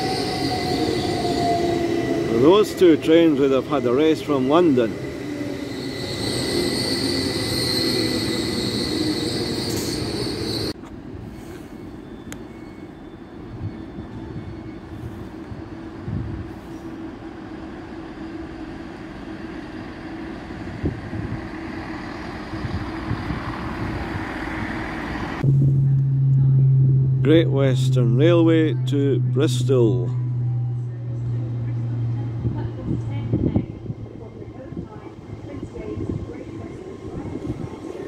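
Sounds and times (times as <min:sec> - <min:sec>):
train wheels squealing: 0:00.0 - 0:16.0
diesel train rolling slowly: 0:00.0 - 0:38.0.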